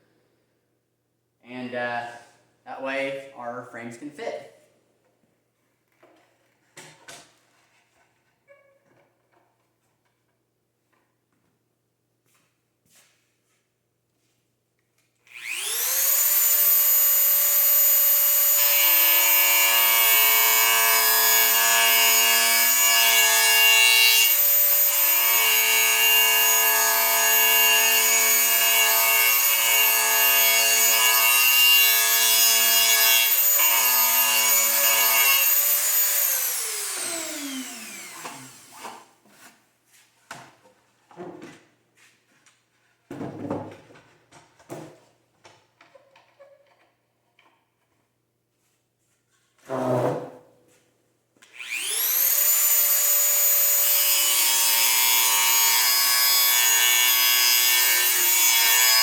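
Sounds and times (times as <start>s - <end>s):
rotary tool sanding wood: 15.4s - 17.3s, 18.6s - 39.1s, 51.6s - 59.0s.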